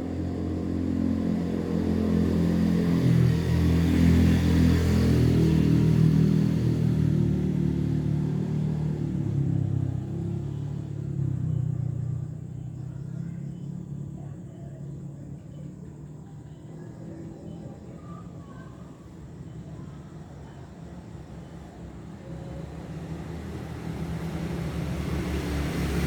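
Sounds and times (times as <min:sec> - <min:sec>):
vehicle engine rumbling: 0:20.9 - 0:26.0.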